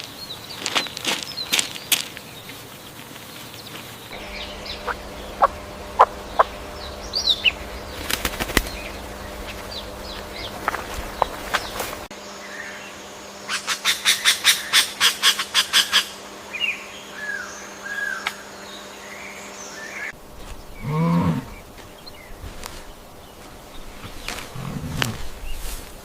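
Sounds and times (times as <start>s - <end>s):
bird harsh calls: 3.3s - 12.8s, 13.4s - 25.8s
faint chirps: 3.3s - 12.9s
low animal call: 20.7s - 21.8s, 23.9s - 25.7s.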